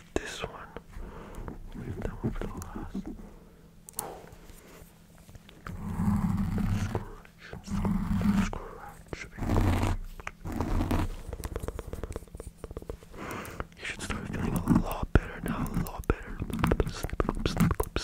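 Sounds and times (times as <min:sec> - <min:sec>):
person growling: 0:05.7 - 0:08.5
mouth clicks: 0:11.3 - 0:18.0.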